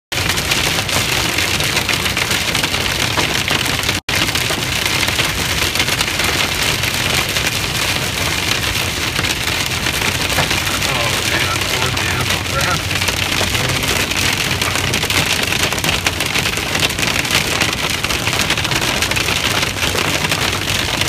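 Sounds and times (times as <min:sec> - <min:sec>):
hail clattering: 0:00.2 - 0:21.0
low rumble: 0:09.8 - 0:16.2.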